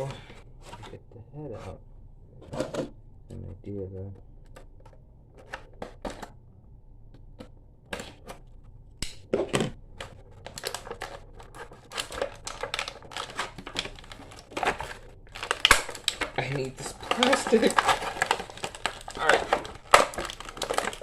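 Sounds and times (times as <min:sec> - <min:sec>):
plastic packaging crinkling: 0:10.0 - 0:21.0.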